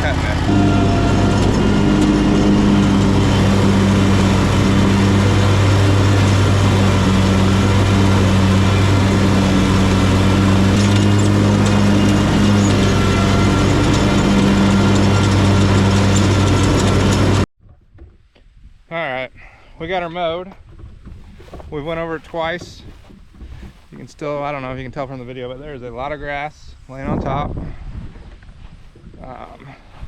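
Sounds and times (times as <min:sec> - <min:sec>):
lawn mower engine running: 0:00.0 - 0:17.5.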